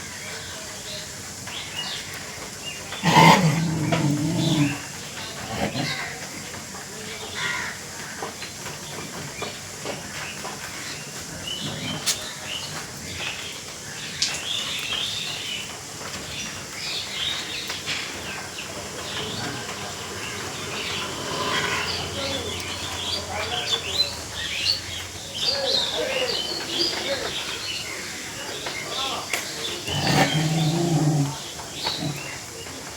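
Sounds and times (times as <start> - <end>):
rain hissing: 1.4 - 6.2, 10.8 - 32.9
birds chirping: 1.4 - 6.3, 16.4 - 32.9.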